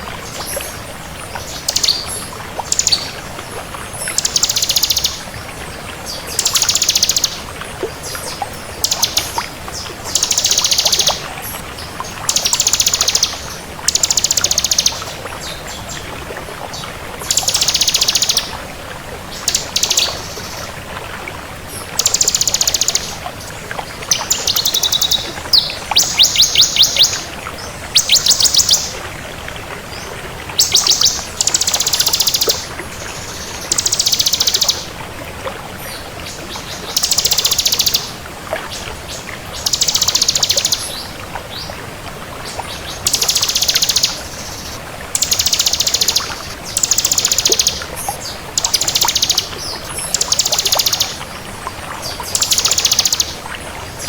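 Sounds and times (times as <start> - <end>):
bird singing fast trills: 4.1 - 5.2, 10.1 - 11.2, 17.3 - 18.5, 19.4 - 20.3, 22.0 - 23.1, 24.1 - 27.3, 27.9 - 28.9, 30.6 - 32.7, 33.4 - 34.9, 36.9 - 38.1, 39.6 - 40.9, 43.1 - 51.2, 52.3 - 53.4.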